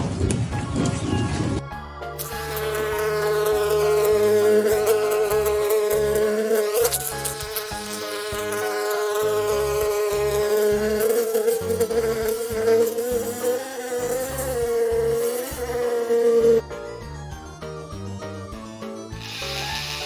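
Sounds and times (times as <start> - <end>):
flying insect buzzing: 2.2 - 16.7, 19.2 - 20.0.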